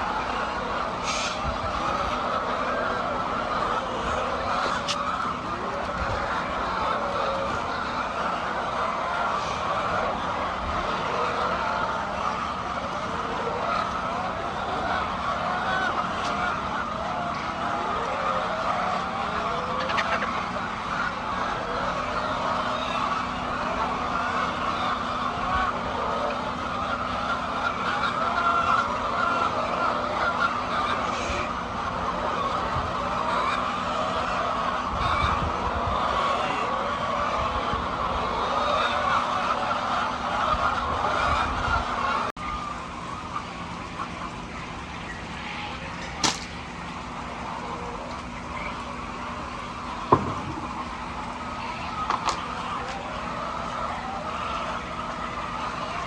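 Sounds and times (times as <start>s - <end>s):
faint bird calls: 0.0s - 56.0s
hens clucking: 0.0s - 56.0s
sharp click: 46.2s - 46.6s
knock: 50.1s - 50.6s.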